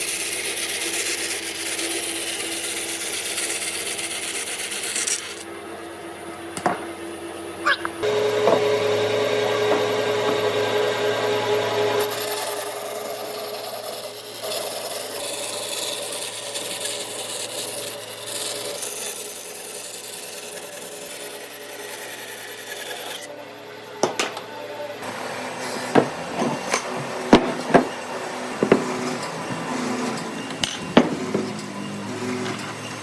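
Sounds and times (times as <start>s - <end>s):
tool scraping and cutting wood: 0.0s - 5.5s, 8.0s - 23.3s, 25.5s - 33.0s
low machine hum: 5.5s - 18.9s
sharp knocks: 26.0s - 28.0s, 28.6s - 29.6s.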